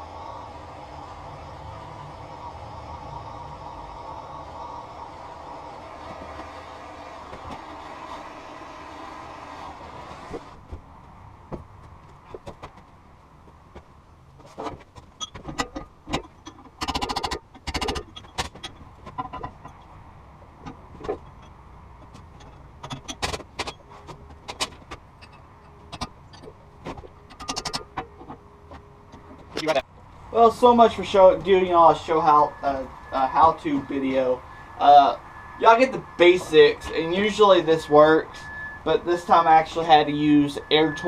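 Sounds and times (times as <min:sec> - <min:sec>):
metal clinks and knocks: 0:14.4 - 0:20.0, 0:20.6 - 0:29.8.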